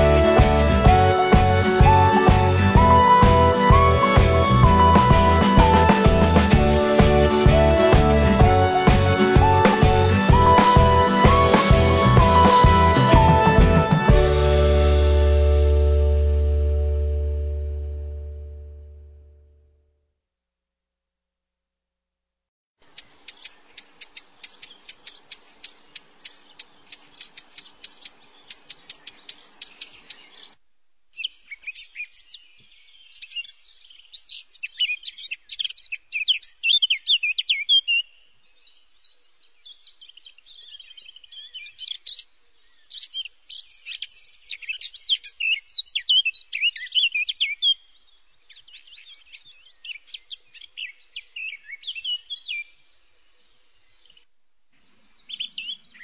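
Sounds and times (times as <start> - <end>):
birds chirping and trilling: 22.8 - 56.0.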